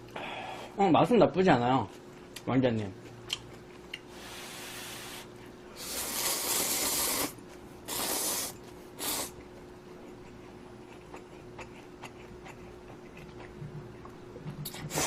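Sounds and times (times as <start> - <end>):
slurping noodles: 5.8 - 9.4, 14.7 - 15.0.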